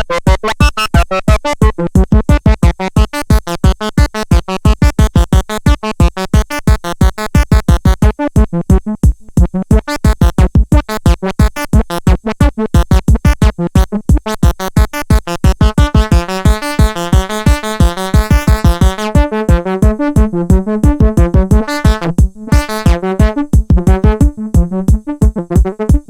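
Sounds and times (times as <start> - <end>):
synthesizer short sharp notes: 15.2 - 26.0
deep bass thump: 15.6 - 26.0.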